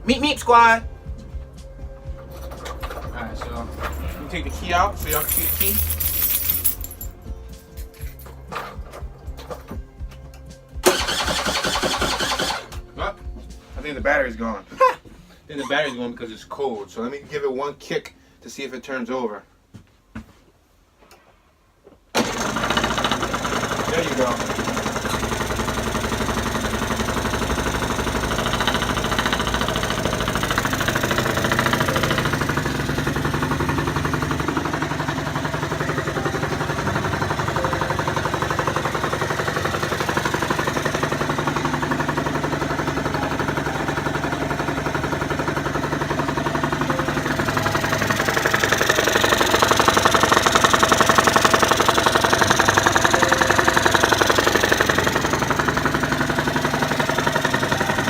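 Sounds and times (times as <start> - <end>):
scooter engine idling: 22.2 - 58.0.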